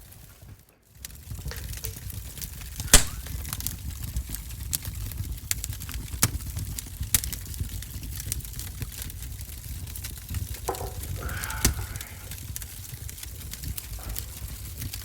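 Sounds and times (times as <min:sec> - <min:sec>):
wood fire crackling in stove: 0:00.0 - 0:15.0.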